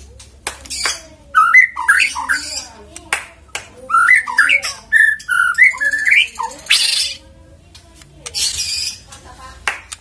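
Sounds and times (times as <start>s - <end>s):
bird singing whistled notes: 1.4s - 2.7s, 3.9s - 7.2s
harsh rasping bird call: 1.4s - 2.7s.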